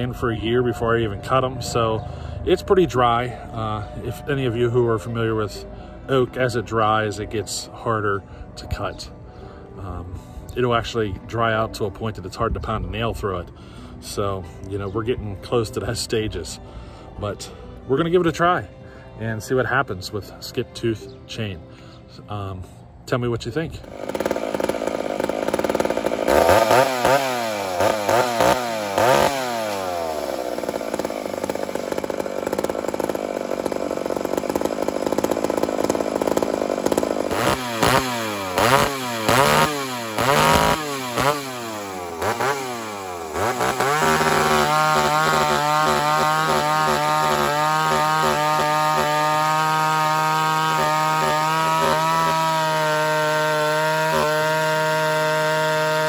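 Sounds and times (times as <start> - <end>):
chainsaw revving: 0.0 - 7.7, 23.6 - 56.0
chainsaw cutting wood: 23.8 - 56.0.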